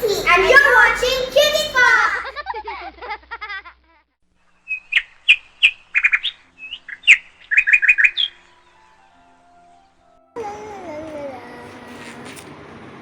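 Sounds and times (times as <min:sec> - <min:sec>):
birds chirping: 0:04.6 - 0:10.0.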